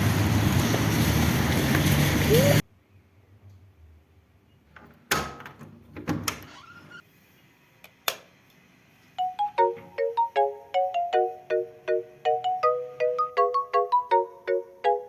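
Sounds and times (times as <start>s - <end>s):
marimba-like tune: 9.2s - 15.0s.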